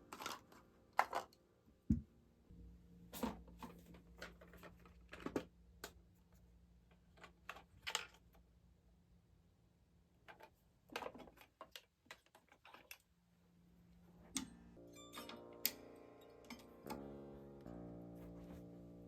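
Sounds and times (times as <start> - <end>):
faint low hum: 0.0 - 11.1.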